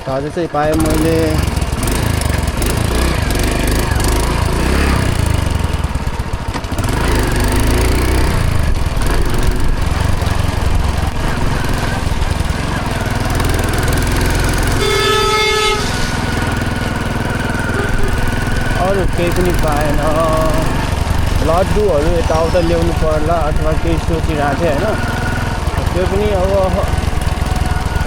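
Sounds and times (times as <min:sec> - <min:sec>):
motorcycle engine running: 0:00.0 - 0:28.0
horn: 0:14.7 - 0:16.7.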